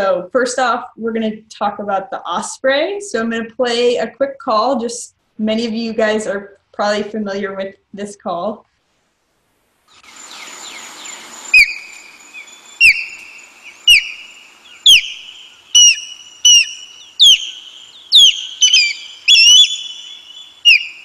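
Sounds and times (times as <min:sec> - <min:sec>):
background hiss: 0:08.6 - 0:21.0
osprey whistled call: 0:10.1 - 0:21.0.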